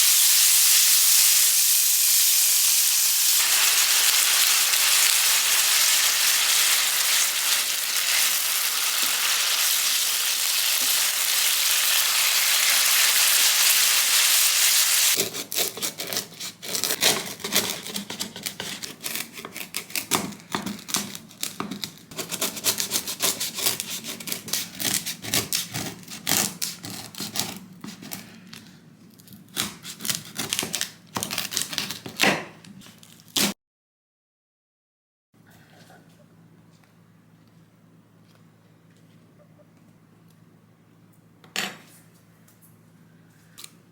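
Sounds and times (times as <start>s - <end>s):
food sizzling in a frying pan: 0.0s - 15.2s.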